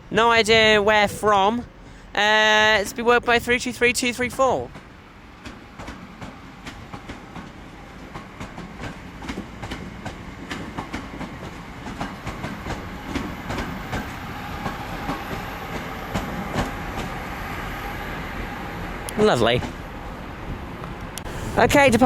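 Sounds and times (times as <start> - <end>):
train rolling through station: 0.0 - 22.0
train whine: 0.0 - 22.0
wheels clicking over rail joints: 4.2 - 17.5.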